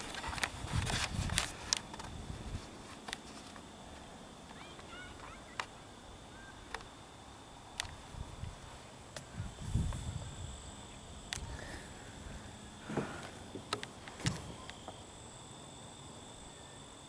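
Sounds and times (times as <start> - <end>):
faint bird chirps: 4.5 - 6.8
faint steady high tone: 14.3 - 17.0.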